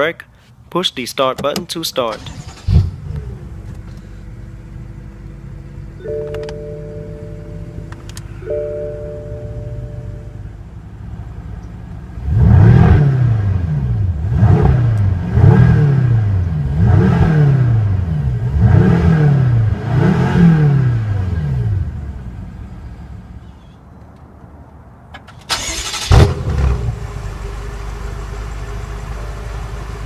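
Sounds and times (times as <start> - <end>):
car engine idling and revving: 2.1 - 24.5, 25.2 - 30.0.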